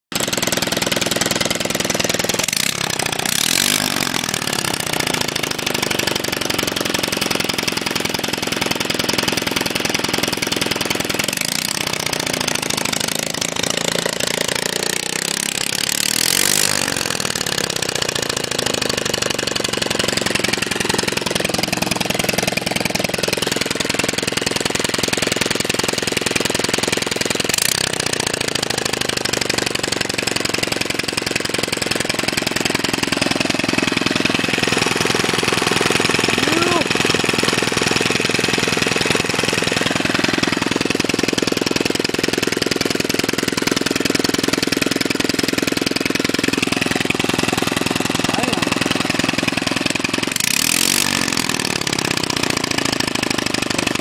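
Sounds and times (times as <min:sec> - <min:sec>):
small engine running unmuffled: 0:00.1 - 0:54.0.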